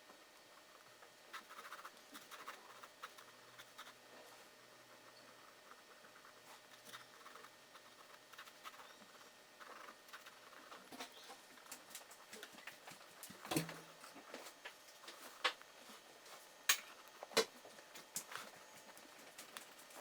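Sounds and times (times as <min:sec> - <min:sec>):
drawing tool scratching on paper: 0:01.3 - 0:04.0, 0:05.6 - 0:11.2.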